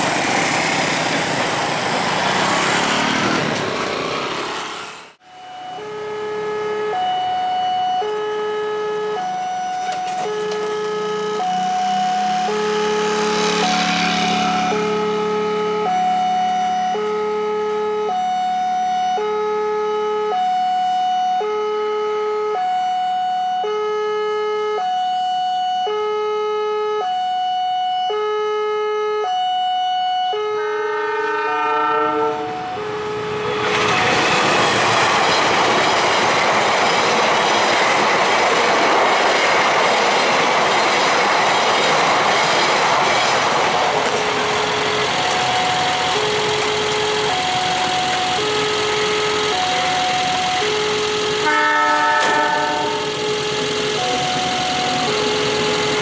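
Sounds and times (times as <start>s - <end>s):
train rattling past: 0.0s - 5.2s, 9.2s - 17.2s, 30.8s - 56.0s
two-tone crossing alarm: 5.2s - 56.0s
train horn: 30.2s - 33.7s, 48.9s - 54.6s.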